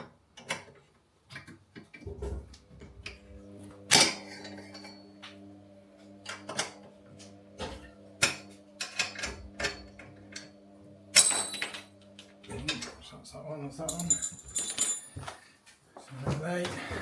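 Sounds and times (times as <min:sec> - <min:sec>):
ringing metallic clank: 0:13.9 - 0:15.2
spanner clinking on bolts: 0:13.9 - 0:15.2.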